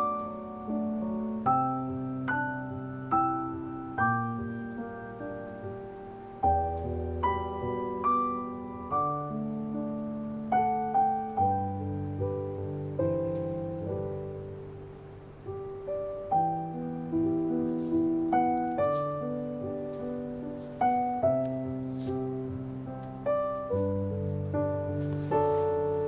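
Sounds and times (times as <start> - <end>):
soft piano music: 0.0 - 26.0.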